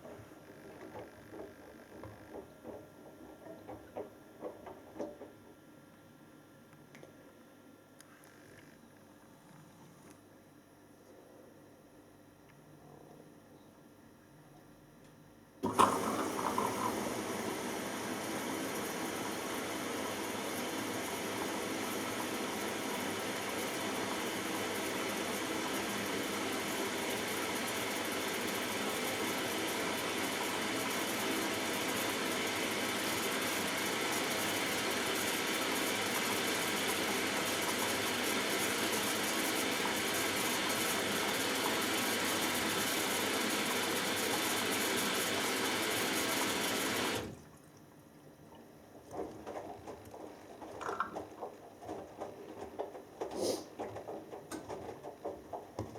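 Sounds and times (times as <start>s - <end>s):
water rushing into washing machine: 15.6s - 55.9s.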